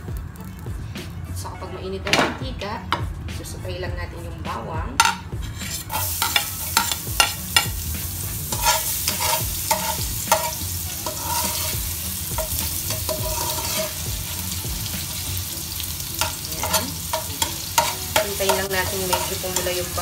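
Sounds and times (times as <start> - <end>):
metal spoon scraping a pot: 5.0 - 7.7, 8.5 - 11.8, 12.4 - 14.1, 16.2 - 19.7
garlic sizzling in hot oil: 5.7 - 20.0.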